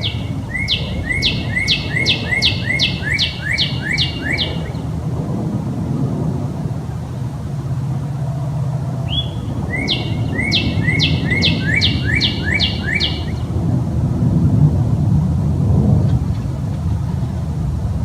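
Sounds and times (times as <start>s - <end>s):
songbird singing: 0.0s - 5.1s, 9.0s - 13.7s
low rumble: 0.0s - 18.0s.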